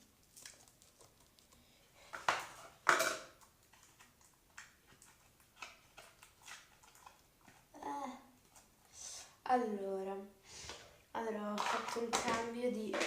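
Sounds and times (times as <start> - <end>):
plastic containers rustling and knocking: 2.0 - 7.7, 10.6 - 13.0.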